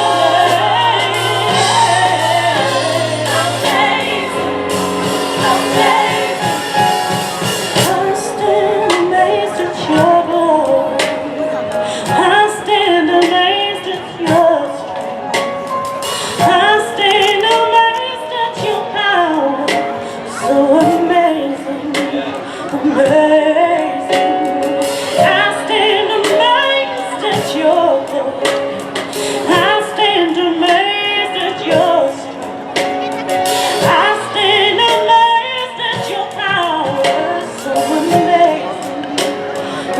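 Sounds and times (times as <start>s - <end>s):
steady drum beat: 0.0s - 11.2s, 23.0s - 39.9s
women singing gospel: 0.0s - 14.9s, 20.3s - 28.4s, 29.2s - 32.4s, 33.8s - 39.9s
piano: 0.0s - 39.9s.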